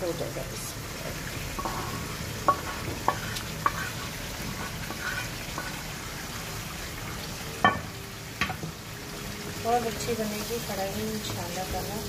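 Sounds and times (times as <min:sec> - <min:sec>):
meat and gravy sizzling: 0:00.0 - 0:12.0
wooden spoon knocking on pan: 0:07.6 - 0:08.7.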